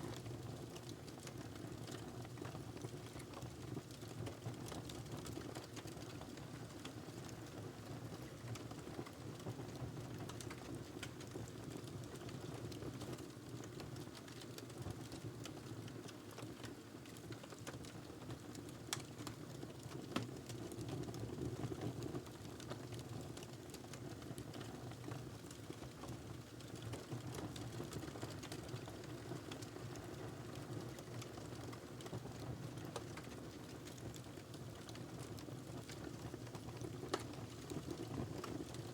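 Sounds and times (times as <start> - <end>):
wood fire crackling: 22.2 - 38.9.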